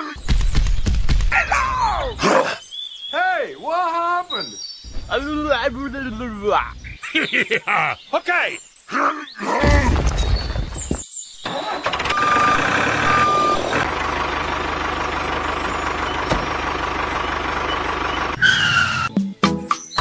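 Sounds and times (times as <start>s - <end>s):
tractor engine running: 4.9s - 6.9s, 11.4s - 19.1s
short beeps: 12.1s - 13.8s.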